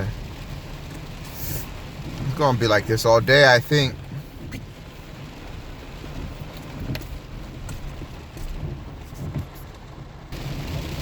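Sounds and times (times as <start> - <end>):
heavy rain hiss: 0.0 - 7.6, 10.3 - 11.0
raindrops ticking on truck: 0.0 - 11.0
truck road and engine rumble: 0.0 - 11.0.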